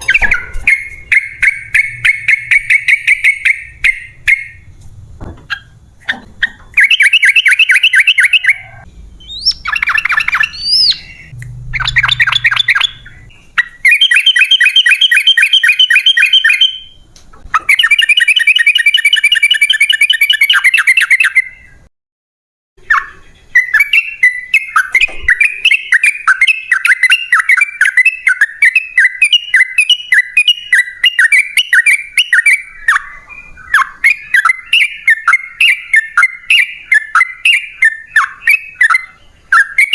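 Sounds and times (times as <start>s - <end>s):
bird chattering trills: 0.0s - 4.6s, 5.5s - 16.9s.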